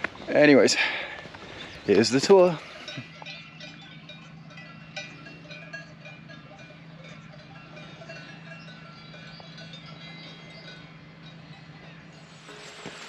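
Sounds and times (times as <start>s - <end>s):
cowbells clanking: 0.0s - 13.0s
low hum: 2.6s - 13.0s.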